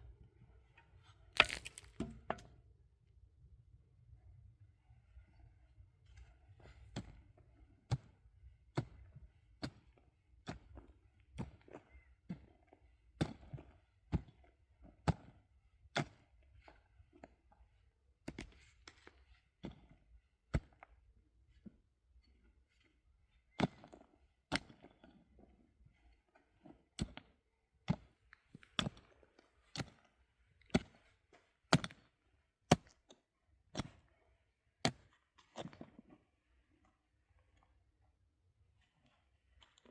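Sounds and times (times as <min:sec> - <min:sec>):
hand tool striking hard material: 0:01.4 - 0:02.1.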